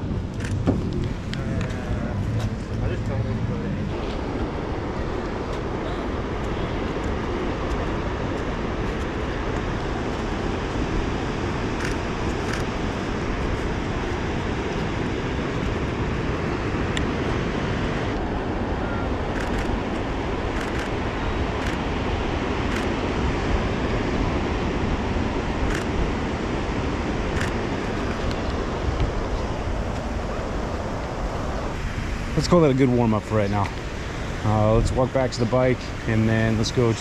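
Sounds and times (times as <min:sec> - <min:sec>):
beach surf: 0:00.0 - 0:37.0
wind noise on microphone: 0:00.0 - 0:37.0.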